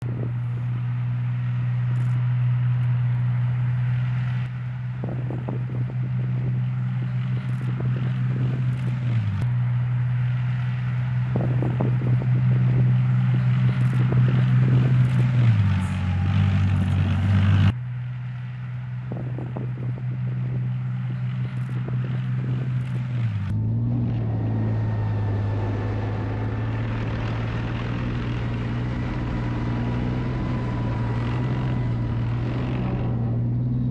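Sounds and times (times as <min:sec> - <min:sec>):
tank diesel engine running: 0:00.0 - 0:33.9.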